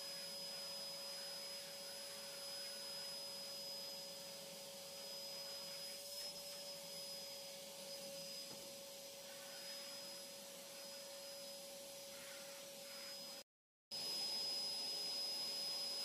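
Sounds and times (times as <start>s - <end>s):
faint motor hum with whine: 0.0s - 13.4s, 14.0s - 16.0s.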